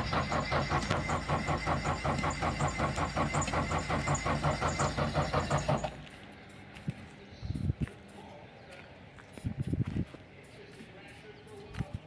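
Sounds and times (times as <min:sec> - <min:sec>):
engine cranking by starter: 0:00.0 - 0:06.0.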